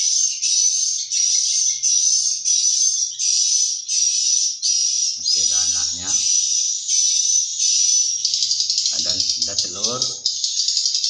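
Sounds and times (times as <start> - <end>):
swiftlets twittering: 5.2 - 11.0.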